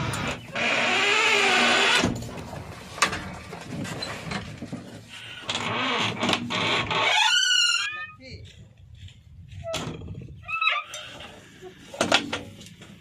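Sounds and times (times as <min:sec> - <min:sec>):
diesel engine under load: 0:00.0 - 0:05.6.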